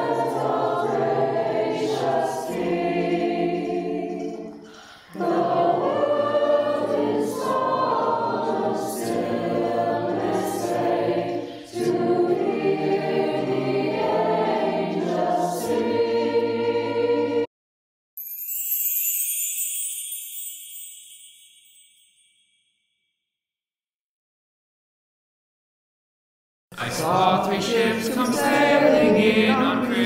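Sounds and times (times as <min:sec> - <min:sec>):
choir singing a carol: 0:00.0 - 0:17.5, 0:26.8 - 0:30.0.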